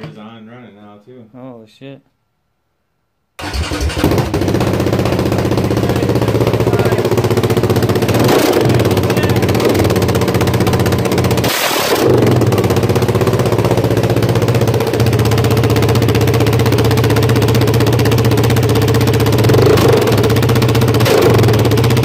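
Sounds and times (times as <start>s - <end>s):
loud four-stroke engine idling: 3.4s - 22.0s.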